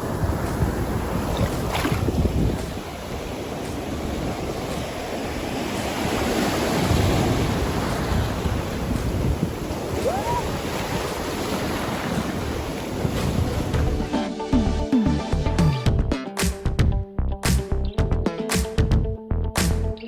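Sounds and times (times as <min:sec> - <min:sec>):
wind buffeting microphone: 0:00.0 - 0:13.9
rushing water: 0:00.0 - 0:15.3.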